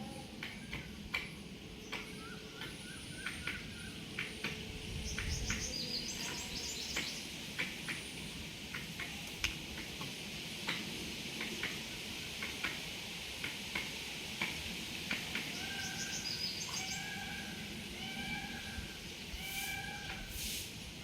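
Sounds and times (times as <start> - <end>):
small birds chirping: 1.8 - 9.0, 15.4 - 17.1.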